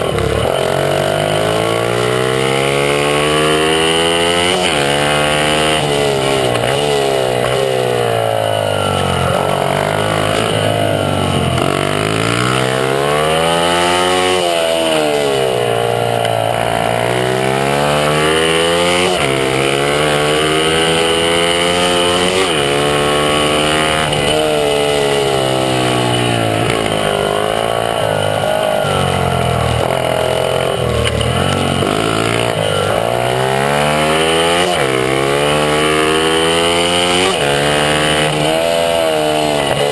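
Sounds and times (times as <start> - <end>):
small motorbike engine revving: 0.0 - 39.9.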